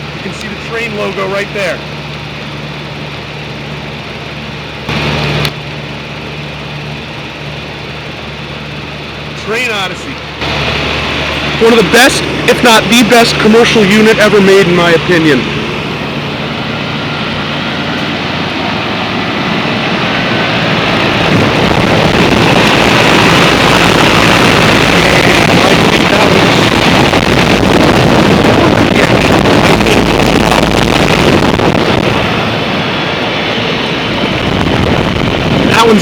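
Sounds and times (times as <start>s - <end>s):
air conditioning units running: 0.0s - 36.0s
air rushing on microphone: 10.4s - 36.0s.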